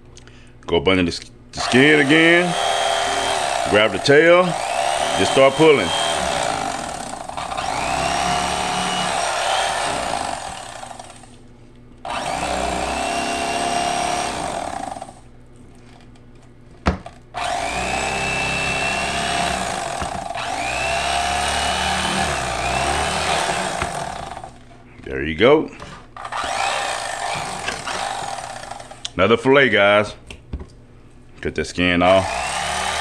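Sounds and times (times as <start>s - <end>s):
electric fillet knife running: 1.6s - 11.4s, 12.1s - 15.2s, 17.4s - 24.7s, 26.2s - 29.1s, 32.1s - 33.0s.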